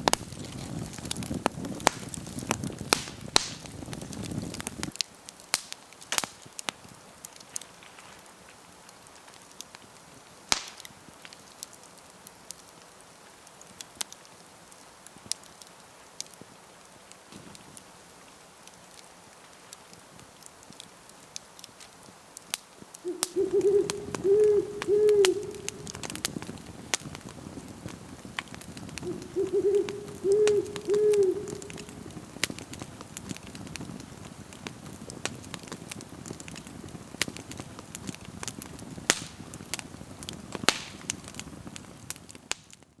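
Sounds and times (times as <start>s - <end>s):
campfire crackling: 0.0s - 43.0s
owl hooting: 23.0s - 26.2s, 29.0s - 32.1s.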